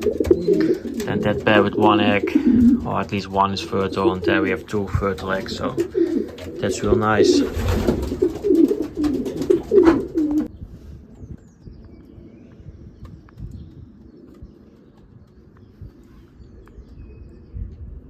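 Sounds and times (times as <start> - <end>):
pigeons cooing: 0.0 - 18.0.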